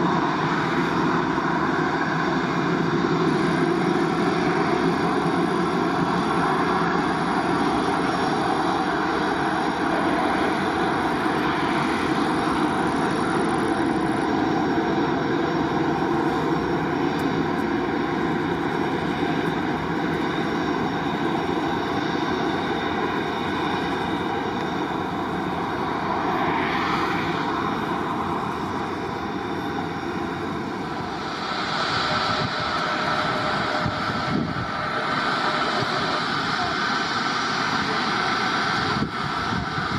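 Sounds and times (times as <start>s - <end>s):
jet engines rushing and whining: 0.0s - 39.9s.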